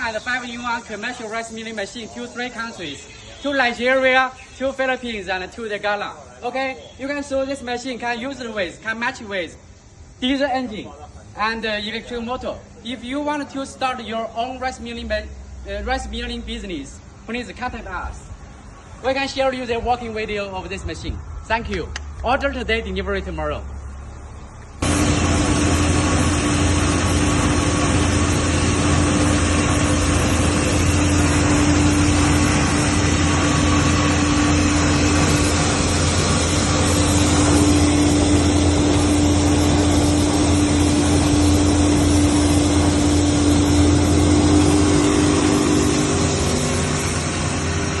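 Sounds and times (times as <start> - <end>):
milling machine humming: 0.0 - 5.2, 24.8 - 48.0.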